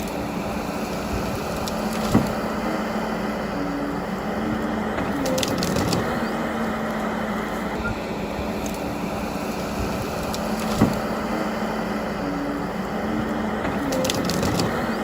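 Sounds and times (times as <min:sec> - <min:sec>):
machine engine humming: 0:00.0 - 0:15.0
wood splintering crackle: 0:05.0 - 0:06.2.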